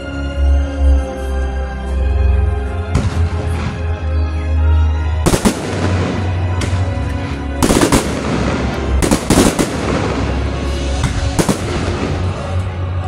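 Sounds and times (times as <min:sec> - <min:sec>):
music: 0:00.0 - 0:13.0
fireworks bangs: 0:05.2 - 0:12.6.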